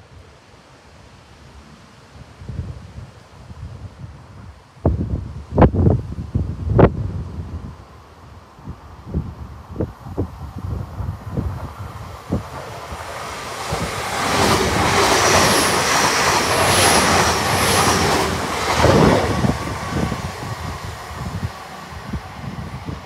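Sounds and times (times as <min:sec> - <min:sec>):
train rushing past: 0:09.7 - 0:23.0.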